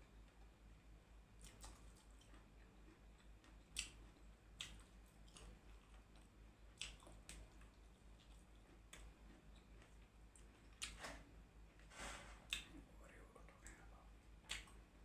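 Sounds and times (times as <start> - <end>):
mouth clicks and crunches: 1.4 - 11.0, 14.4 - 14.8.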